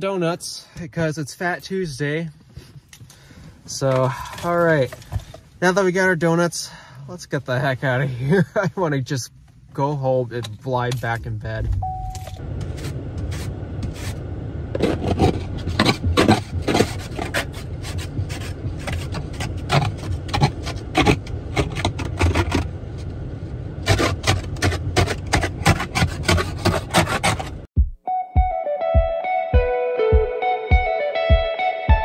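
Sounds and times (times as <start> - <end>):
ice scraper scraping car window: 12.6 - 22.7, 23.8 - 27.7.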